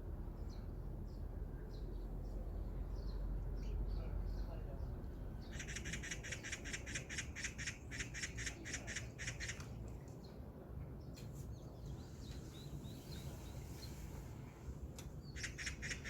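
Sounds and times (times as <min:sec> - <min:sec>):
bird harsh chattering call: 0:05.5 - 0:09.6, 0:15.3 - 0:16.0.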